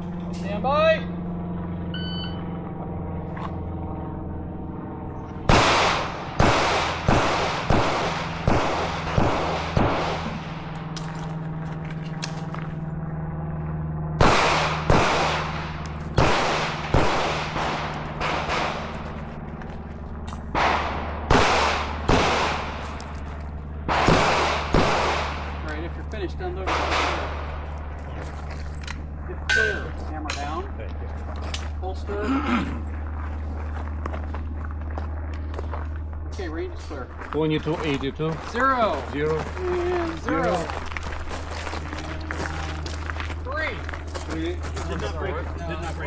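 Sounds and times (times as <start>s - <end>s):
steady low hum: 0.0s - 46.0s
pistol shots with echo: 5.5s - 11.0s, 14.2s - 19.1s, 20.5s - 23.1s, 23.8s - 25.7s, 26.6s - 27.8s.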